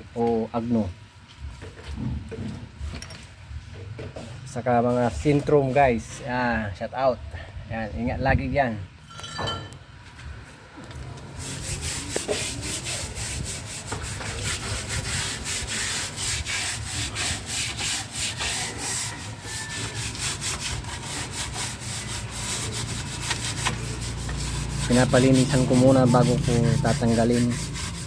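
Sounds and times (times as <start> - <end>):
brush scrubbing metal parts: 11.4 - 28.0.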